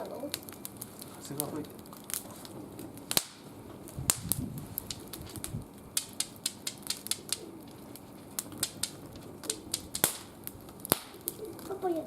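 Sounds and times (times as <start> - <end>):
wood fire crackling: 0.0 - 12.0.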